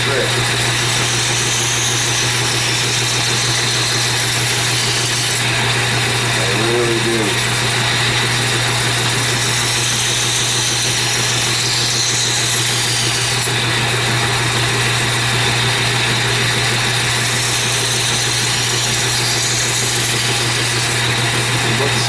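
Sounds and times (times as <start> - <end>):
belt grinder motor hum: 0.0 - 22.0
blade grinding on abrasive belt: 0.0 - 22.0.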